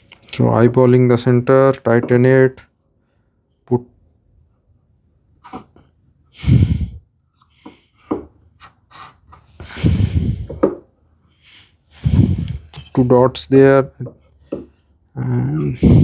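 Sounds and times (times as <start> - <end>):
breathy bursts of air: 6.3 - 7.0, 9.0 - 10.6, 11.5 - 12.8, 15.8 - 16.0.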